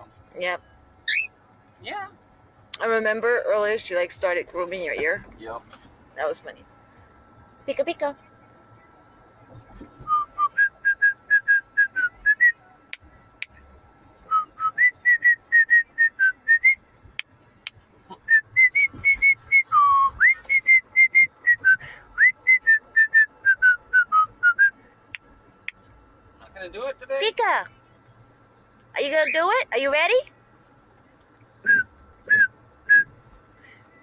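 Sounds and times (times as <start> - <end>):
cockatiel whistling: 1.1 - 1.3, 10.0 - 12.6, 14.3 - 16.8, 18.3 - 24.7, 31.6 - 33.1.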